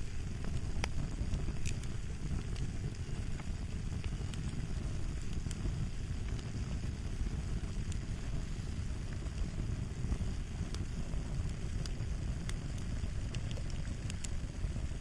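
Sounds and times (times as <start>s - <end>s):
small faint pops: 0.0s - 6.5s, 9.2s - 14.4s
fire crackling: 0.0s - 15.0s.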